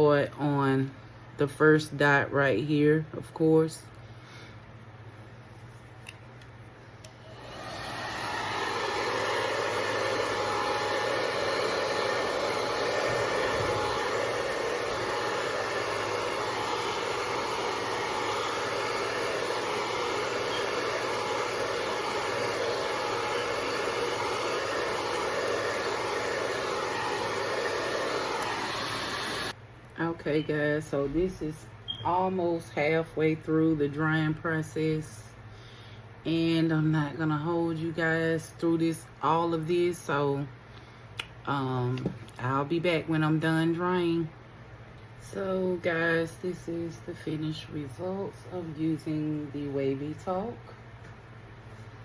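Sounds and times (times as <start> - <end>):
hair dryer blowing air: 7.0 - 29.6
hair dryer switch click: 28.3 - 28.6.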